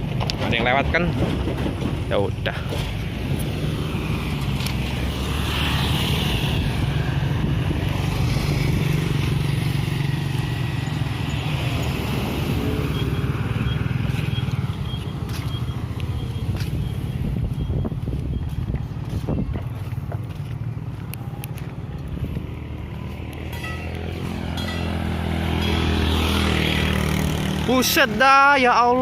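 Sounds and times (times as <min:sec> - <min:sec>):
road noise: 0:00.0 - 0:29.0
vehicle engine running: 0:08.6 - 0:27.8.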